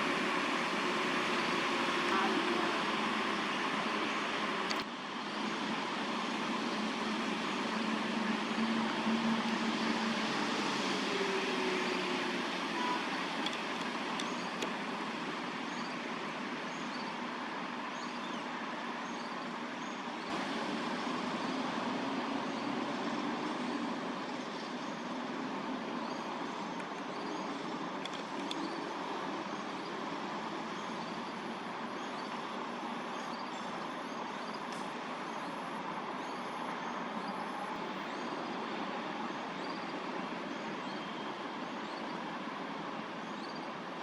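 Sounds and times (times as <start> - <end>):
city road traffic hum: 0.0 - 44.0.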